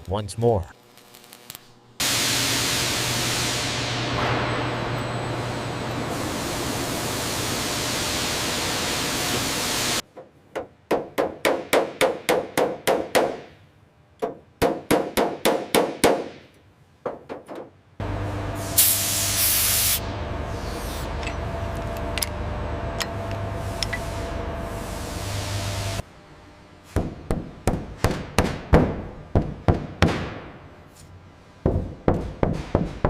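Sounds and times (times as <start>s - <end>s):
low hum: 20.0s - 26.7s.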